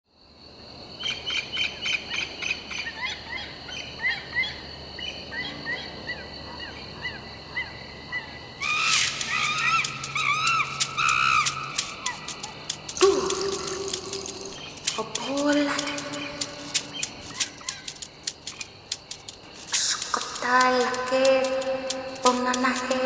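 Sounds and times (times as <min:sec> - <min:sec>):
birds chirping: 0:08.6 - 0:23.0
sharp clicks or splashes: 0:08.6 - 0:23.0.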